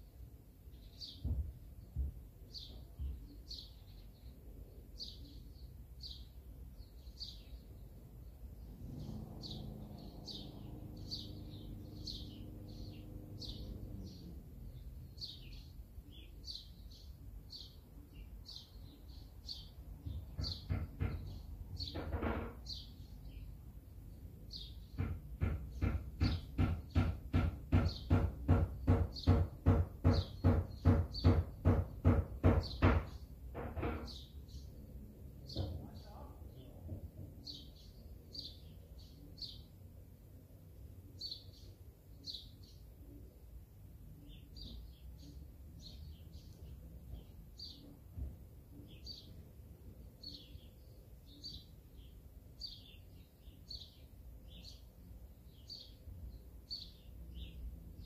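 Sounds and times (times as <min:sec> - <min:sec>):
bird chirping: 0:00.0 - 0:58.0
fast loud knocks: 0:01.2 - 0:02.3, 0:20.2 - 0:22.7, 0:24.9 - 0:34.2.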